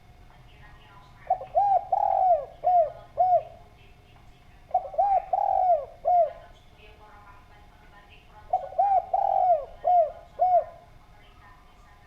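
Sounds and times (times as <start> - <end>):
dove cooing: 1.2 - 3.8, 4.6 - 6.6, 8.3 - 11.0.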